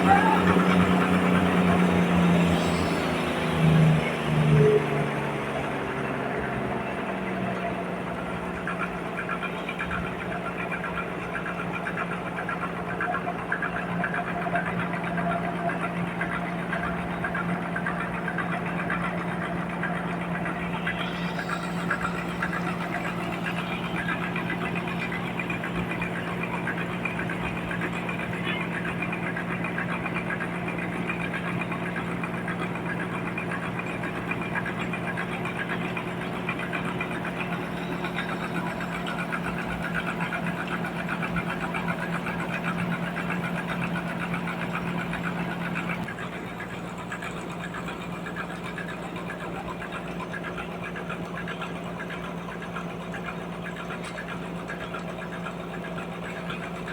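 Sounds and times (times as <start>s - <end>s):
sawmill running: 0.0s - 56.9s.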